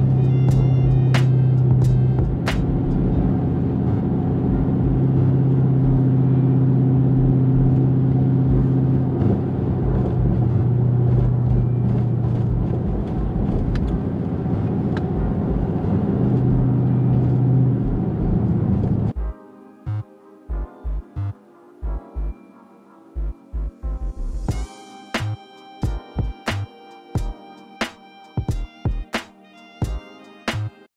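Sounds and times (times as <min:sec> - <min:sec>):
road noise: 0:00.0 - 0:19.2
car engine drone: 0:00.0 - 0:27.3.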